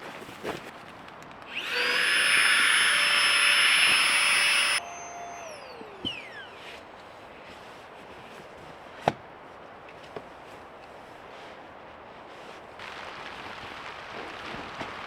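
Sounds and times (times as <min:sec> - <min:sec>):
electric blower whining: 0:01.5 - 0:06.8.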